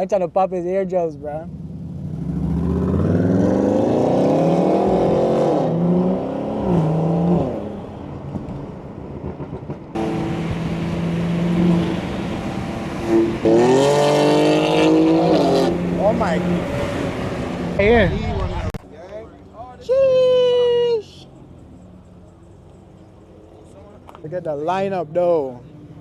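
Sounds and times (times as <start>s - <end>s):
car engine accelerating hard: 1.5s - 8.0s, 9.9s - 18.8s.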